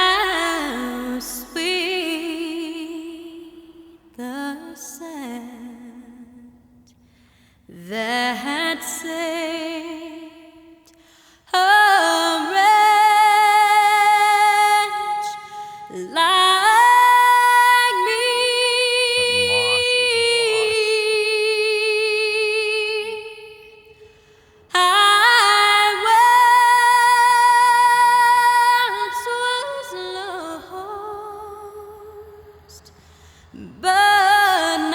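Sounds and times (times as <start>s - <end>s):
woman singing long notes: 14.2s - 23.6s
singer breathing: 19.2s - 20.9s, 23.9s - 24.7s.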